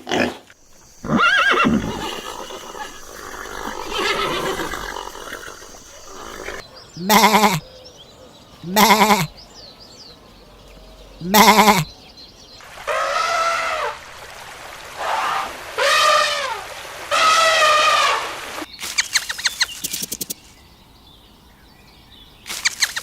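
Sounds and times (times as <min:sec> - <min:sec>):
rapid clicking animal calls: 0:00.5 - 0:07.6, 0:18.8 - 0:20.5, 0:22.5 - 0:23.0
farm animal drawn-out calls: 0:00.6 - 0:07.6, 0:08.6 - 0:09.4, 0:11.1 - 0:11.9.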